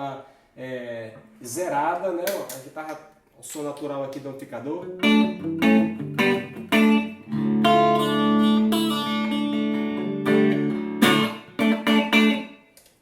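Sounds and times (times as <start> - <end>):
electric guitar chords: 4.8 - 12.6.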